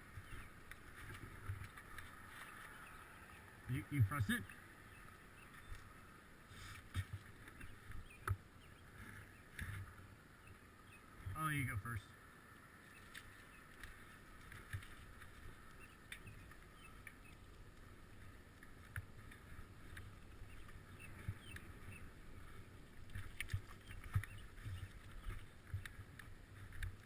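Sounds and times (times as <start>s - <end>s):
bicycle rattling over rough ground: 0.0s - 5.9s.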